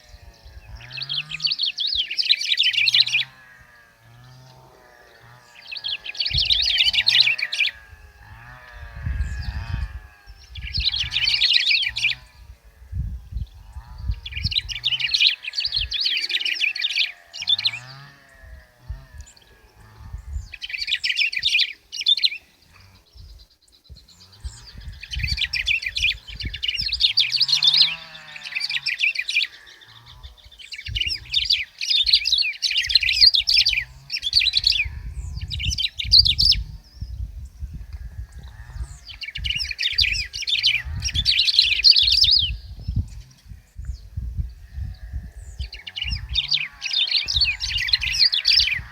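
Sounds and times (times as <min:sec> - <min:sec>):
grosbeak singing: 0:00.0 - 0:48.9
low rumbling: 0:03.2 - 0:16.0, 0:17.4 - 0:21.0, 0:29.6 - 0:48.9.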